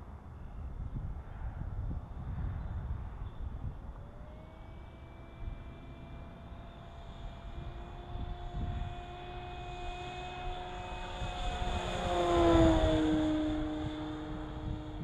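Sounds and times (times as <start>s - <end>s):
model plane motor whine: 2.4s - 15.0s.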